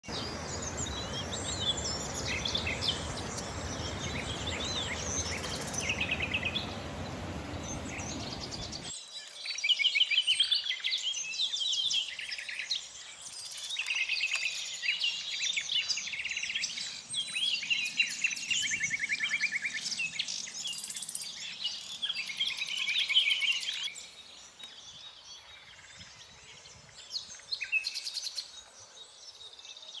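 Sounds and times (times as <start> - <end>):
nightingale singing: 0.0 - 8.9
low rushing noise: 0.1 - 8.9.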